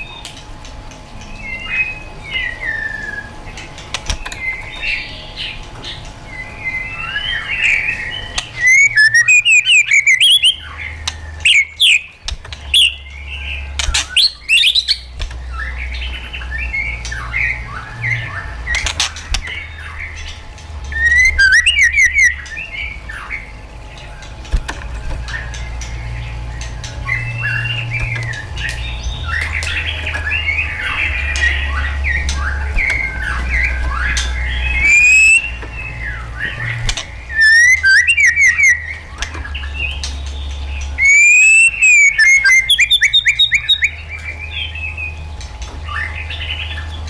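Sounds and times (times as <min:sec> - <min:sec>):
bird singing whistled phrases: 0:01.3 - 0:03.4, 0:06.3 - 0:12.1, 0:12.7 - 0:15.9, 0:20.9 - 0:23.5, 0:27.0 - 0:40.0, 0:40.8 - 0:45.1.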